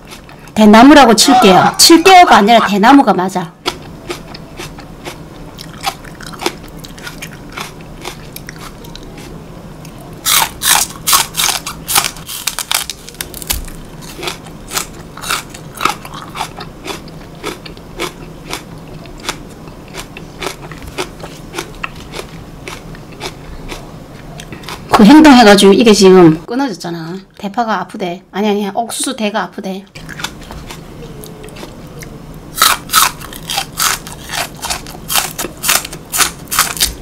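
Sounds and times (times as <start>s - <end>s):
green onion crunching: 3.6s - 24.9s, 30.0s - 37.0s.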